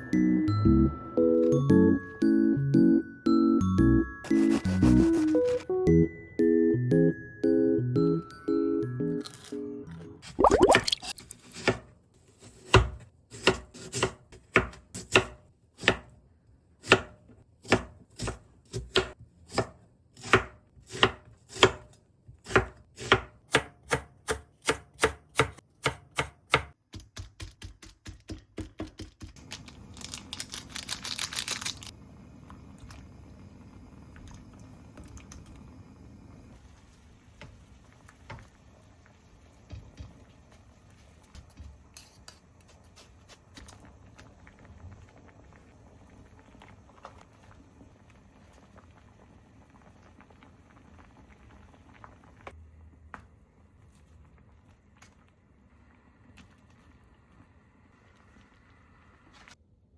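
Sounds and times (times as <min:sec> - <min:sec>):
knife chopping on cutting board: 0:12.5 - 0:16.1, 0:16.8 - 0:29.3.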